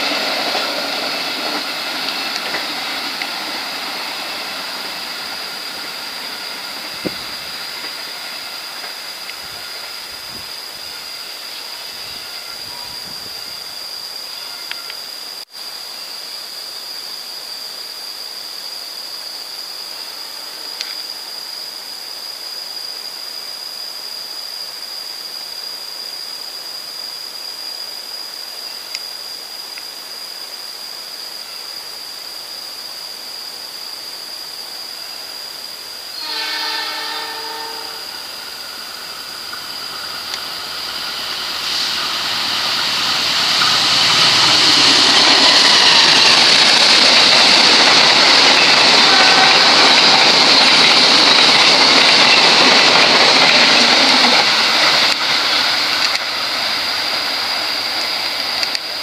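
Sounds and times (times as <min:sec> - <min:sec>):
train passing at speed: 0:00.0 - 0:14.4, 0:34.0 - 0:59.0
locomotive horn blast: 0:36.2 - 0:38.2.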